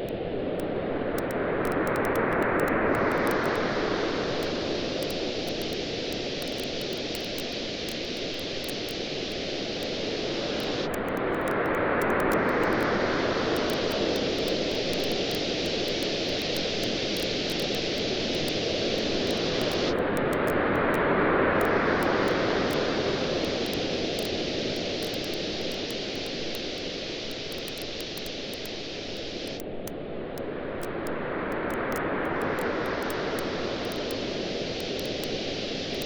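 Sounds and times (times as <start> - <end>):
ocean waves washing on beach: 0.0 - 36.0
campfire crackling: 4.4 - 12.9, 13.5 - 20.3, 22.0 - 29.8.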